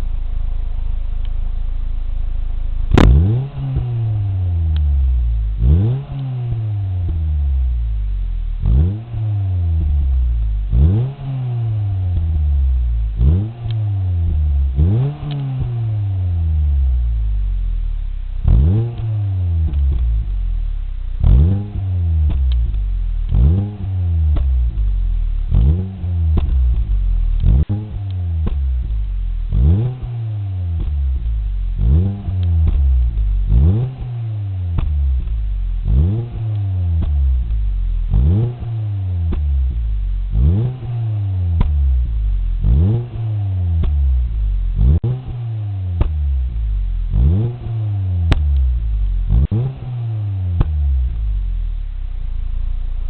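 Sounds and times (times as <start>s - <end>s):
car engine idling and revving: 0.0s - 53.0s.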